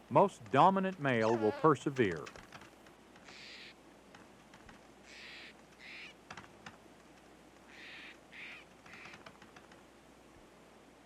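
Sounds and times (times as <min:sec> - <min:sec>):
squirrels scolding calls: 0:01.2 - 0:02.2, 0:03.2 - 0:03.8, 0:05.0 - 0:06.3, 0:07.6 - 0:09.4.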